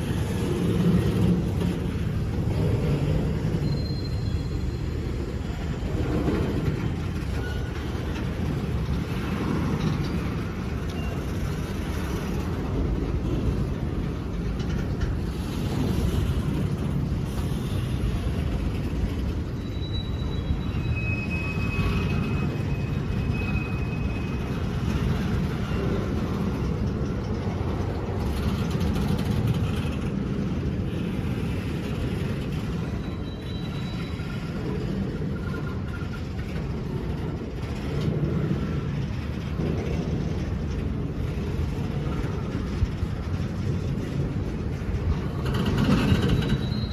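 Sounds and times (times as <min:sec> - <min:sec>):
train wheels rumbling on rail: 0:00.0 - 0:46.9
high-pitched wheel squeals: 0:03.4 - 0:06.0, 0:07.2 - 0:08.3, 0:17.4 - 0:25.8, 0:32.5 - 0:36.6, 0:45.5 - 0:46.9.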